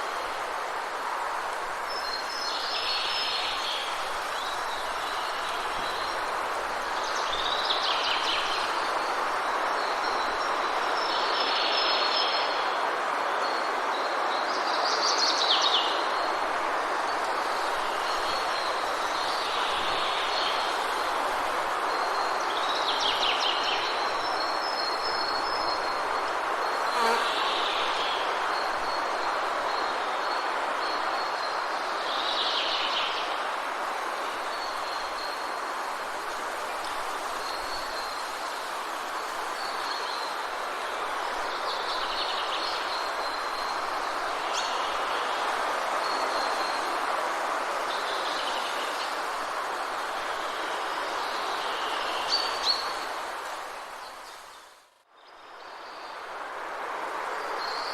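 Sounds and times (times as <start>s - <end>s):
thin high insect tone: 26.7s - 28.0s.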